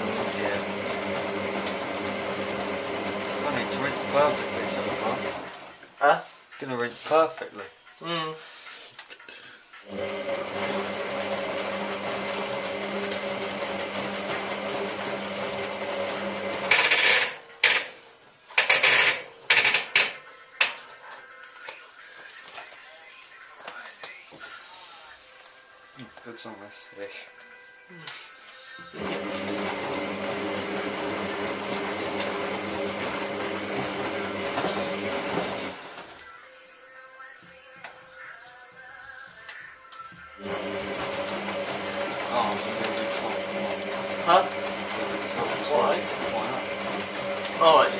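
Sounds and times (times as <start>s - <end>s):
washing machine humming: 0.0s - 5.7s, 9.9s - 17.4s, 29.0s - 36.1s, 40.4s - 47.9s.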